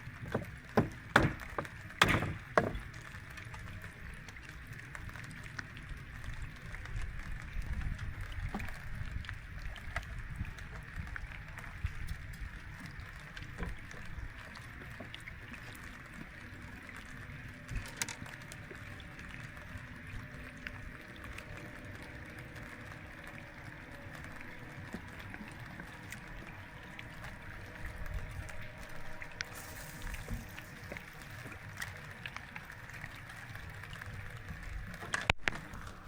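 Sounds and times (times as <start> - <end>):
water splashing: 0.0 - 36.0
small knocks: 0.2 - 3.1.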